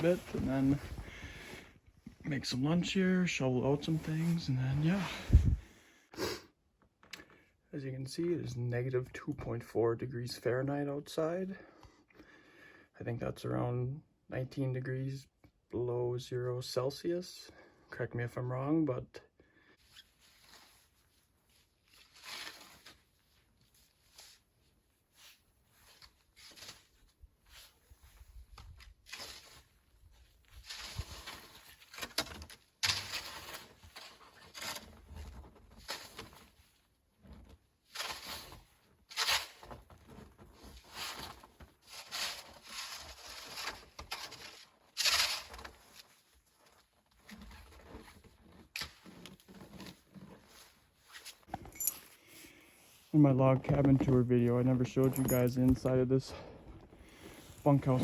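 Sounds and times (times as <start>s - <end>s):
footsteps crunching through snow: 0.0s - 1.6s, 57.0s - 58.0s.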